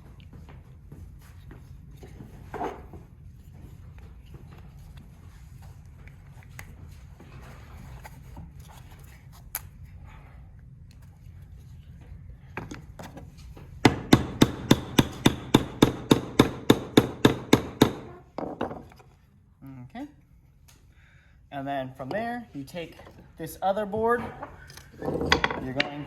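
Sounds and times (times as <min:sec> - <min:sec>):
hammer tapping on wood: 0:13.9 - 0:18.8
handling wooden parts: 0:17.5 - 0:19.2, 0:22.8 - 0:26.0.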